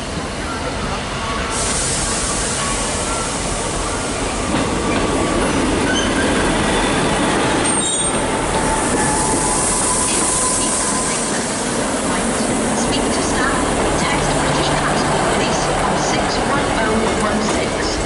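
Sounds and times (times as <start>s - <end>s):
diesel train passing: 0.0s - 18.0s
high wheel squeal: 5.8s - 7.0s, 7.6s - 11.4s.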